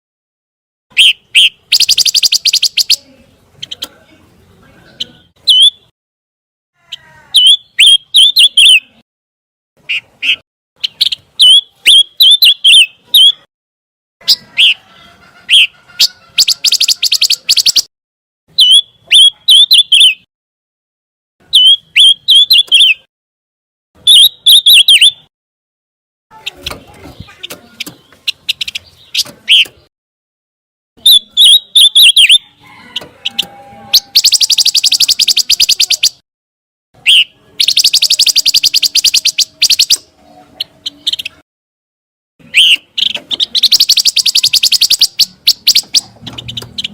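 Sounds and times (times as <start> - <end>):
bird singing high chirps: 0.9 - 3.9, 4.8 - 5.9, 6.9 - 9.0, 9.8 - 13.5, 15.5 - 17.9, 18.5 - 20.3, 21.4 - 23.1, 24.0 - 25.3, 31.0 - 36.2, 37.0 - 41.4, 42.4 - 46.9
bird rattling trill: 16.4 - 17.9, 33.2 - 36.2, 37.6 - 40.0, 42.6 - 46.9.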